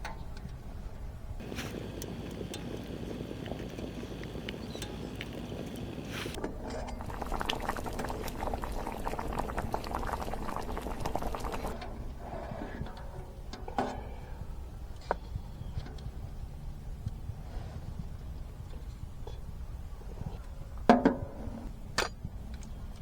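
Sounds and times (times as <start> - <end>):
liquid bubbling and sizzling: 1.4 - 13.5.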